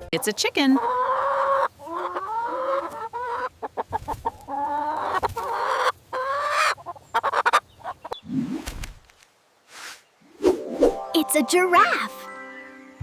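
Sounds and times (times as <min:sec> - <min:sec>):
chicken clucking: 0:00.1 - 0:08.2.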